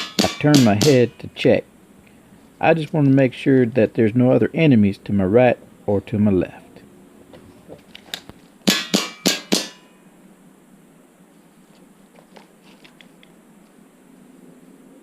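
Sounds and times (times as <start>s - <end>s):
pellets clanging off steel plates: 0.0s - 1.2s, 8.7s - 9.9s.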